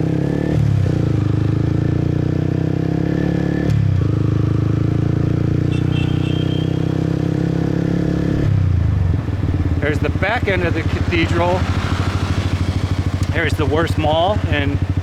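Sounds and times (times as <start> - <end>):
motorbike engine running: 3.7 - 15.0.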